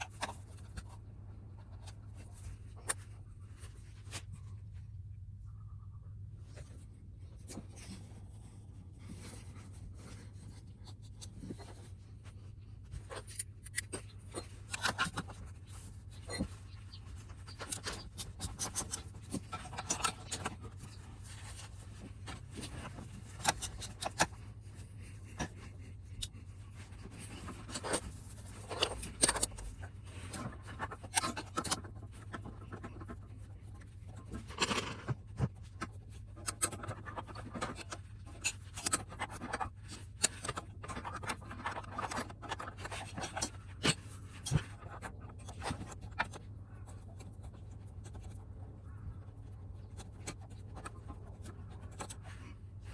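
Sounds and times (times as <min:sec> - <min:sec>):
steady low hum: 0:00.0 - 0:52.9
metal clicks and scrapes of tools: 0:12.9 - 0:48.4.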